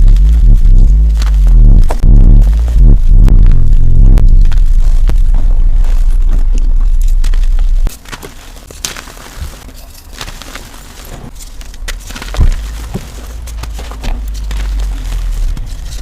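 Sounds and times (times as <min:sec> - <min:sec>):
steady low rumble: 0:00.0 - 0:08.0, 0:11.2 - 0:16.0
chalk cracking and crunching: 0:03.5 - 0:16.0.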